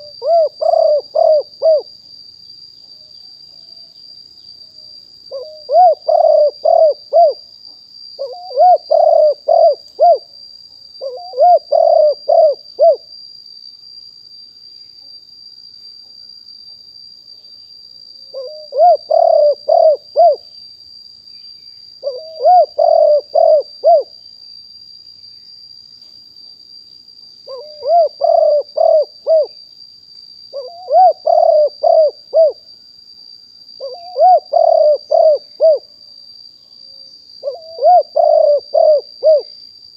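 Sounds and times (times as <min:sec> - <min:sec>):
dove cooing: 0:00.0 - 0:01.9, 0:05.3 - 0:07.4, 0:08.2 - 0:10.3, 0:11.0 - 0:13.0, 0:18.3 - 0:20.4, 0:22.0 - 0:24.1, 0:27.5 - 0:29.6, 0:30.5 - 0:32.6, 0:33.8 - 0:35.9, 0:37.4 - 0:39.5.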